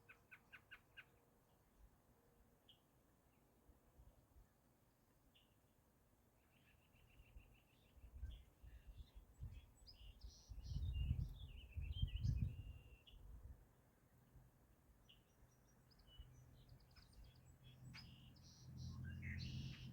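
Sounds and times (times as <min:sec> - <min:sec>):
songbird singing: 0:06.4 - 0:19.9.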